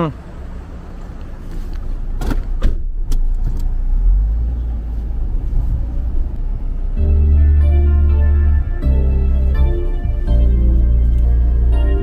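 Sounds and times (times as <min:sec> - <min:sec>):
car engine and road rumble: 0:00.0 - 0:12.0
background music: 0:06.8 - 0:12.0.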